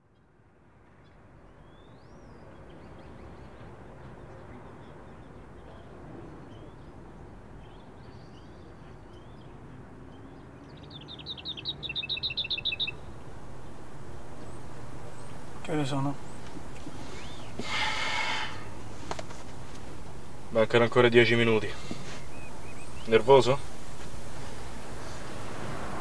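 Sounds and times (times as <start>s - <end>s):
birds chirping: 0.9s - 26.0s
low outdoor rumble: 12.1s - 26.0s.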